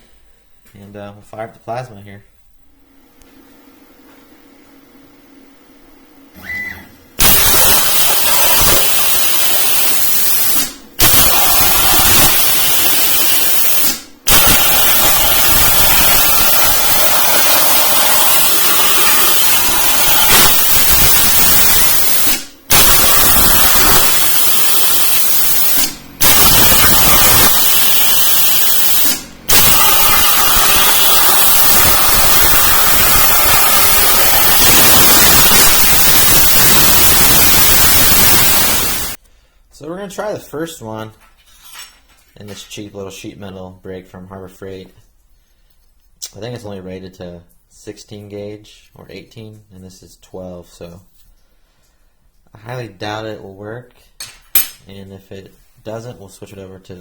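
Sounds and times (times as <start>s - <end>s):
plasma cutter hissing: 7.2s - 39.2s.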